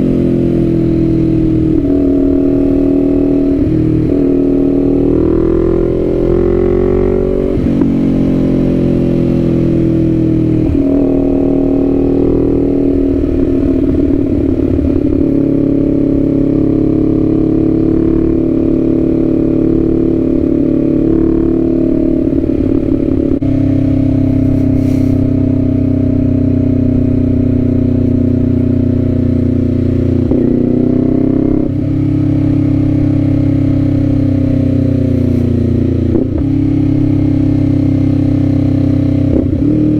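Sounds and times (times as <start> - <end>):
motorcycle engine running with gear changes: 0.0 - 39.9.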